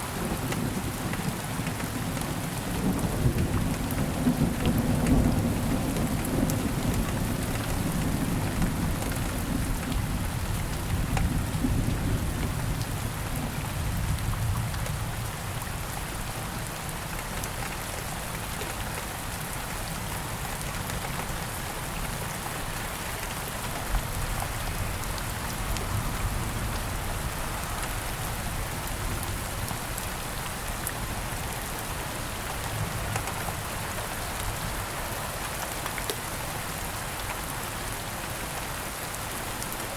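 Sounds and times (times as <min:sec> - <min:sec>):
steady rain falling: 0:00.0 - 0:39.9
low rumble of thunder: 0:00.2 - 0:16.2.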